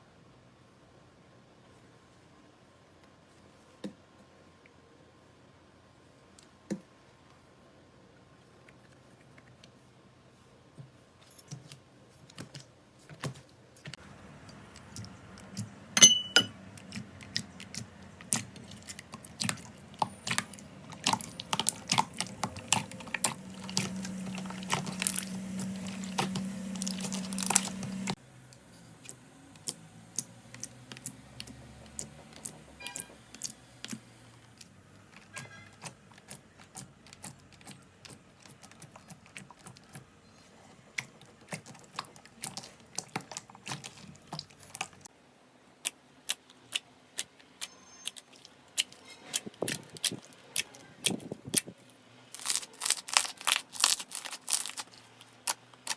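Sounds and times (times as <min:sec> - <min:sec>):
slime squishing and clicking: 0:16.8 - 0:28.2, 0:29.0 - 0:34.0, 0:34.6 - 0:40.1, 0:40.9 - 0:45.1, 0:52.4 - 0:55.9.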